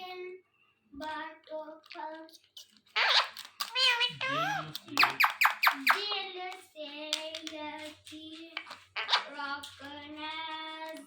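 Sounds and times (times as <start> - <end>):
parrot calling: 2.6 - 6.2, 9.0 - 9.4.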